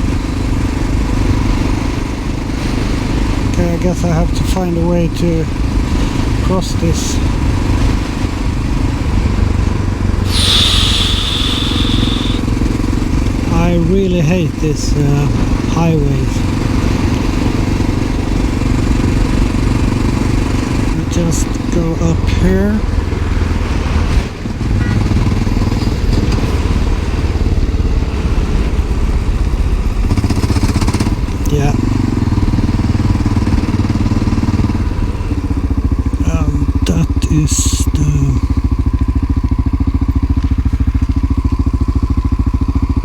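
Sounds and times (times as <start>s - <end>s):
hiss sweeping down: 10.3s - 12.5s
motorcycle engine running: 22.8s - 43.0s.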